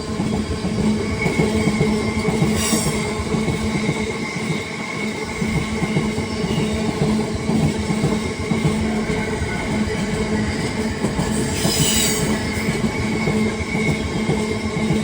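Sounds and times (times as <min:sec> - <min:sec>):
freight train rumble and wheel clatter: 0:00.0 - 0:15.0
high wheel squeal: 0:01.2 - 0:03.2, 0:08.9 - 0:14.2.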